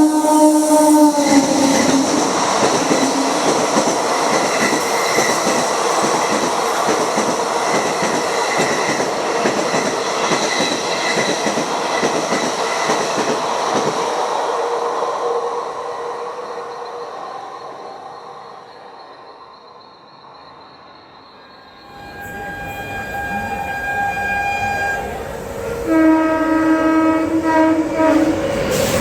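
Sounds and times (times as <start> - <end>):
train horn: 0.0 - 3.9, 21.8 - 29.0
train wheels on rail: 0.0 - 29.0.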